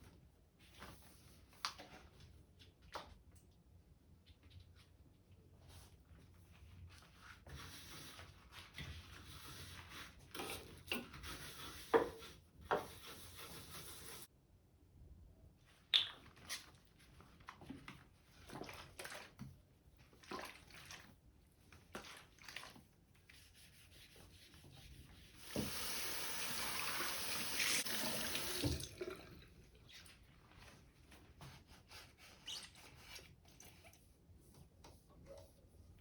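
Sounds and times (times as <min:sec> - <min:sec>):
tap running into sink: 0:25.4 - 0:29.2.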